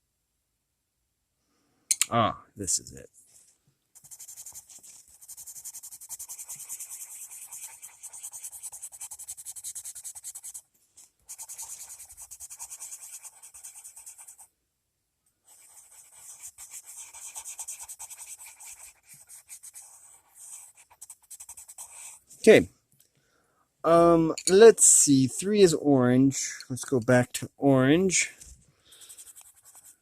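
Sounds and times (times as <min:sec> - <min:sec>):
pencil scratching on paper: 0:04.0 - 0:14.5, 0:15.4 - 0:22.3, 0:28.9 - 0:30.0.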